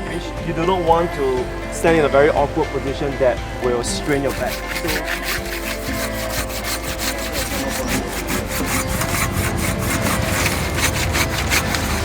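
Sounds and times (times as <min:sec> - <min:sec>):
hand saw cutting wood: 0:04.0 - 0:12.0.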